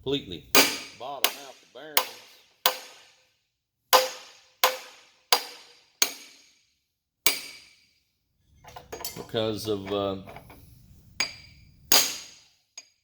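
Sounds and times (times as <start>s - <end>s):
hammer striking metal tool: 0.6s - 3.2s, 4.0s - 6.6s, 7.3s - 7.8s, 11.2s - 13.0s.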